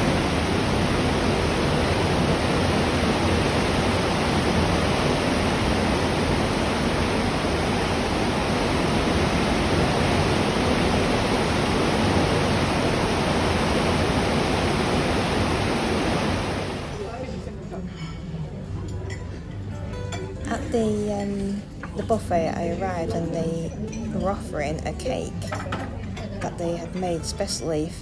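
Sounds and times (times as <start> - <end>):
churning ship wake: 0.0 - 17.1.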